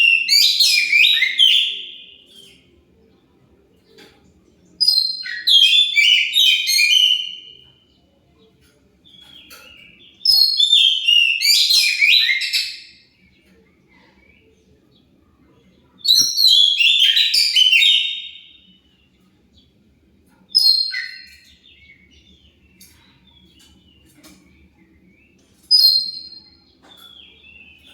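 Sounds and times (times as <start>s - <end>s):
bird singing whistled phrases: 0.0s - 2.2s, 4.8s - 7.6s, 10.2s - 13.0s, 16.0s - 18.7s, 20.6s - 21.8s, 25.7s - 27.9s.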